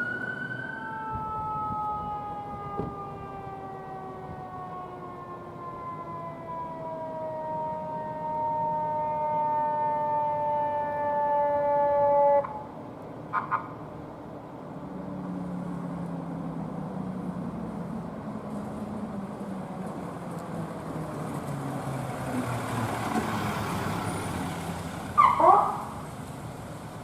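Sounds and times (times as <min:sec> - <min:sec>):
siren chirp: 0:00.0 - 0:12.7, 0:25.2 - 0:26.1
heavy engine driving past: 0:14.8 - 0:27.0.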